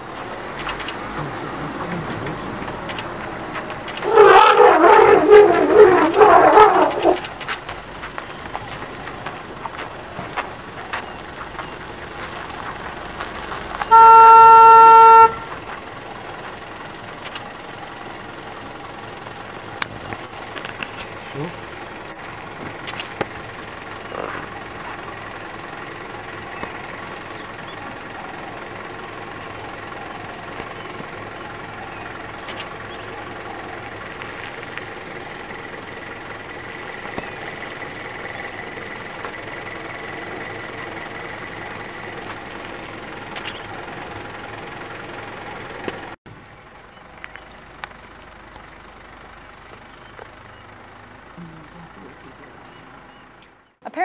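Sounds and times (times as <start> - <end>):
vehicle engine idling: 0.0 - 54.0
sharp clicks: 0.6 - 4.1, 6.0 - 8.6, 17.2 - 17.6, 22.6 - 23.4, 32.4 - 32.8, 43.3 - 43.7.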